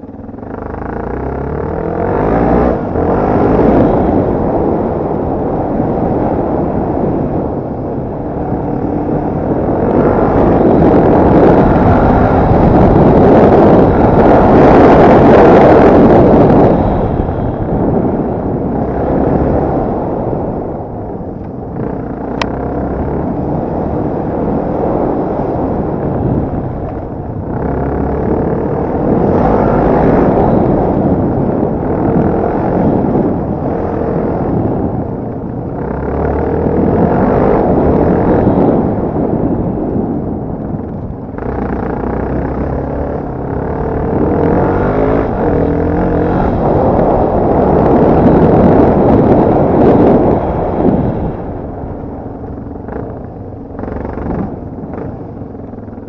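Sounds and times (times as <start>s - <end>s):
wind noise on microphone: 0.0s - 56.0s
dirt bike engine revving: 0.4s - 4.8s, 8.4s - 20.0s, 27.4s - 34.8s, 35.8s - 39.3s, 41.4s - 51.8s.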